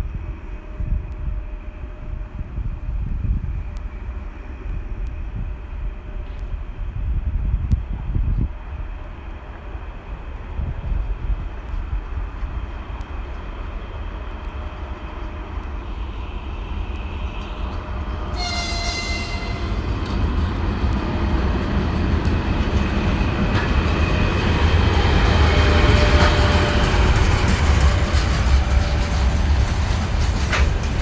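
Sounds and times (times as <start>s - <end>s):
electric locomotive rumble: 0.0s - 31.0s
train horn signal: 18.3s - 20.1s.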